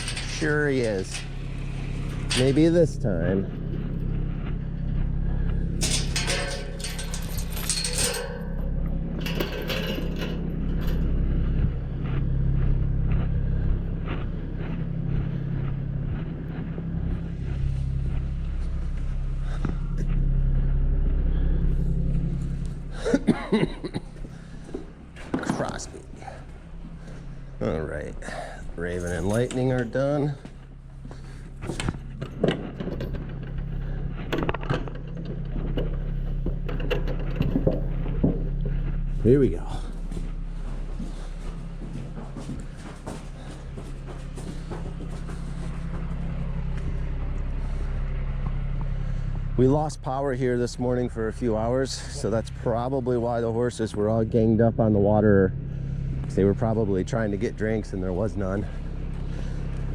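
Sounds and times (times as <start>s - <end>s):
metallic clinks and clanks: 0.0s - 20.2s, 28.2s - 38.8s
light knocks and rattles: 0.0s - 20.7s, 28.4s - 49.0s
engine humming: 0.0s - 59.9s.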